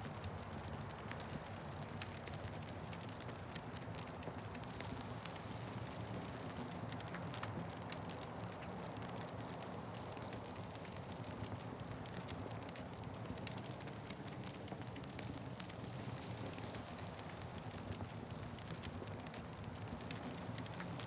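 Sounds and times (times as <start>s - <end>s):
wood fire crackling: 1.5s - 21.0s.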